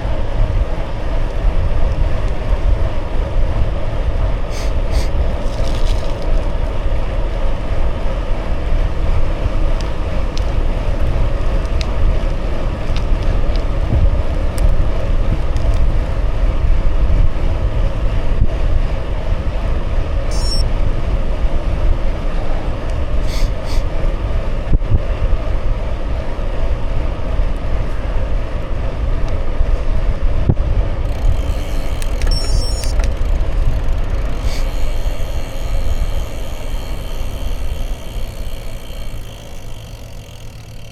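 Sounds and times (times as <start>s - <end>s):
bicycle tyres rolling: 0.0s - 40.9s
wind rumble on microphone: 0.0s - 40.9s
faint high chirps: 20.3s - 20.7s.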